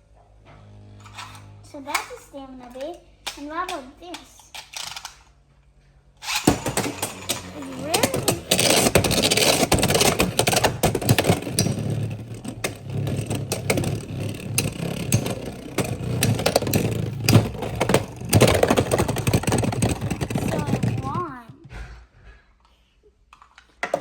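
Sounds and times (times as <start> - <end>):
spinning top scraping and clattering: 6.2 - 21.3.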